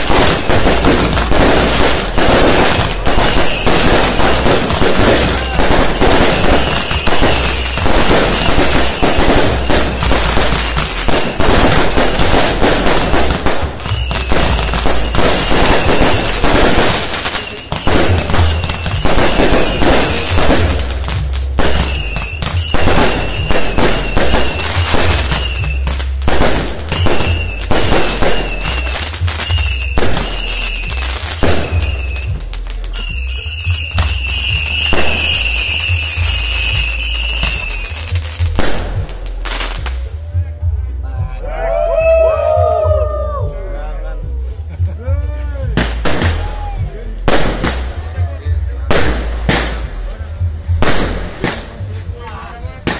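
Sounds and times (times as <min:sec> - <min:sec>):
firecrackers cracking: 0:00.0 - 0:40.1, 0:45.7 - 0:52.9
wavering high firework whistle: 0:03.2 - 0:04.1, 0:05.2 - 0:10.2, 0:13.8 - 0:16.4, 0:21.7 - 0:25.9, 0:26.9 - 0:32.4, 0:33.0 - 0:38.0.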